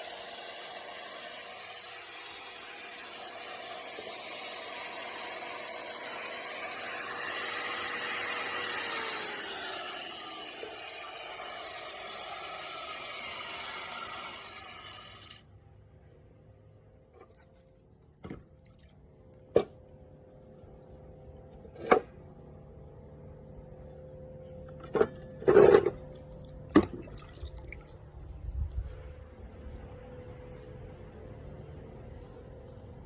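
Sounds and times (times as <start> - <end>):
rock saw grinding stone: 0.0 - 15.5.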